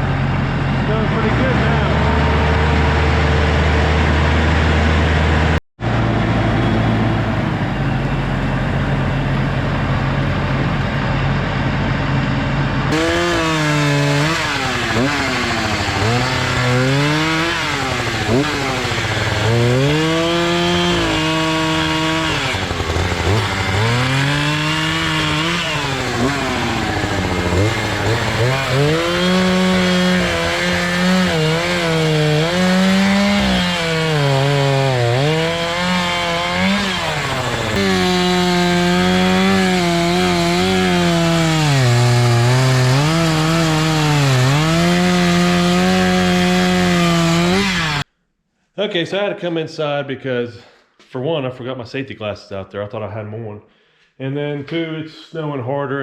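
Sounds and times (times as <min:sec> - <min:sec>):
engine drone: 0:00.0 - 0:48.0
chainsaw cutting wood: 0:00.7 - 0:05.6, 0:12.9 - 0:48.1.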